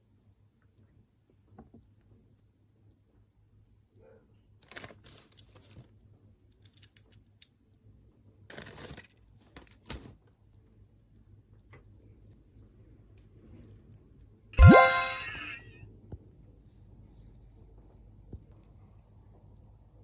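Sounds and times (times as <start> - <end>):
packaging rustling: 4.6 - 5.9, 8.5 - 10.1.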